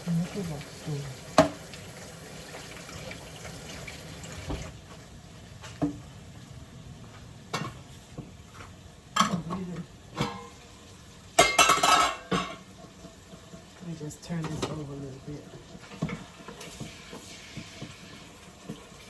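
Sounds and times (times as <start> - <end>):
faint sizzle in a pot: 0.0 - 19.0
pots and utensils clinking: 7.5 - 19.0.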